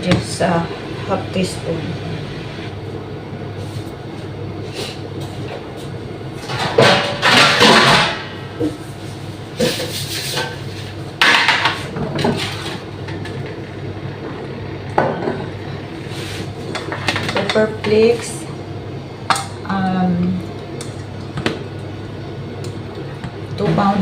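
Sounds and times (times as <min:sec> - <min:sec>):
steady low hum: 0:00.0 - 0:24.0
utensils clattering against bowl: 0:06.4 - 0:08.2.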